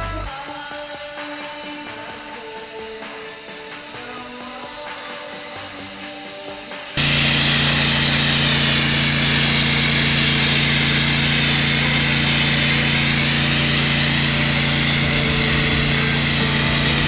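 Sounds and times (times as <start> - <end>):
pressure washer pump hum: 7.0 - 17.0
water spraying hiss: 7.0 - 17.0.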